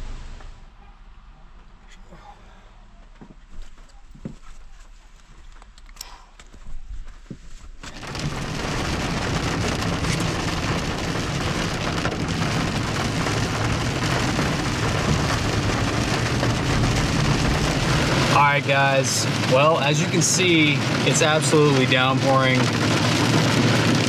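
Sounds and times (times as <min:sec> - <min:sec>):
heavy rain: 0:07.9 - 0:24.0.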